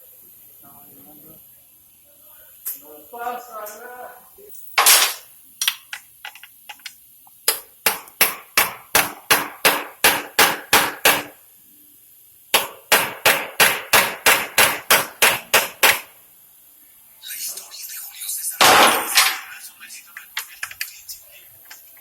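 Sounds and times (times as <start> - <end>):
hammer striking metal: 12.6 - 16.1.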